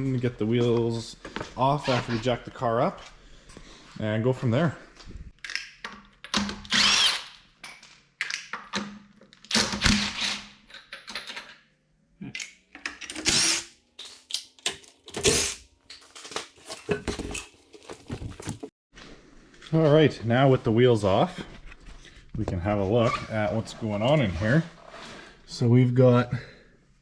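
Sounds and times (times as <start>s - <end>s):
power tool bursts: 6.6s - 7.3s.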